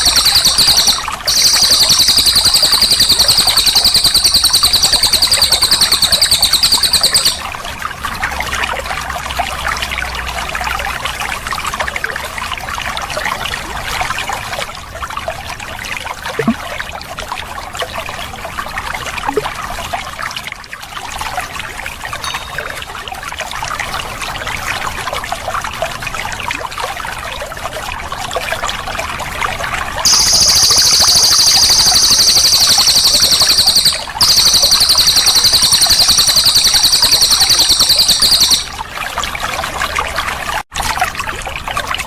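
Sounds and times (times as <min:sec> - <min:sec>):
faint bird chirps: 0:00.0 - 0:07.4, 0:22.2 - 0:22.8, 0:30.1 - 0:38.7
songbird rapid rolling trill: 0:00.0 - 0:07.4, 0:30.1 - 0:38.8
trickle of flowing water: 0:00.0 - 0:42.0.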